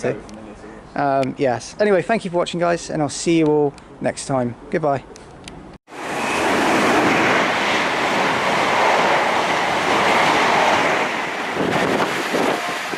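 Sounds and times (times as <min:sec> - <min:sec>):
train running past: 0:05.9 - 0:12.9.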